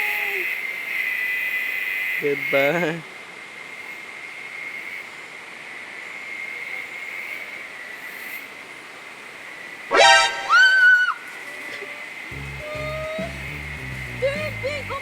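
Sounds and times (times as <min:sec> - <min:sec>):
high-pitched drone: 0:09.9 - 0:11.0.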